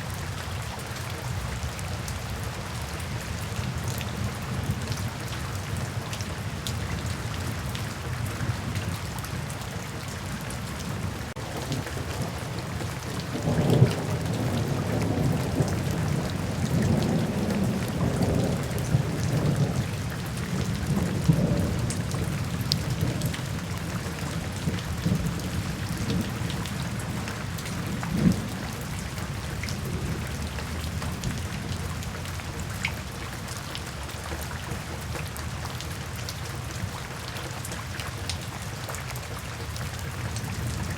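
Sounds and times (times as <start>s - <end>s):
steady rain: 0.0s - 40.9s
thunder rumbling: 11.4s - 32.0s.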